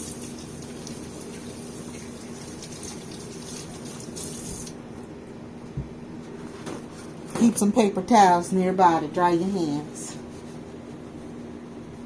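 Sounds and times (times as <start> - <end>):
tap running into sink: 0.0 - 4.8.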